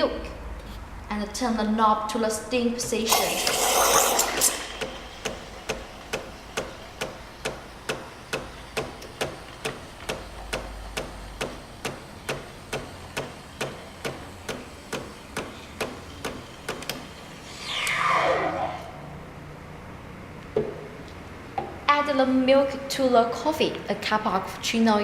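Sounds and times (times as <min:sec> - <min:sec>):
rush of noise: 0:17.4 - 0:19.8.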